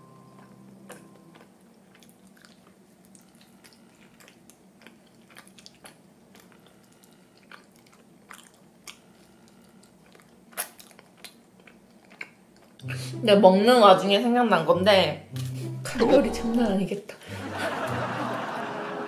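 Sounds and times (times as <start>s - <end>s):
biting and chewing rice cake: 0.4s - 12.8s.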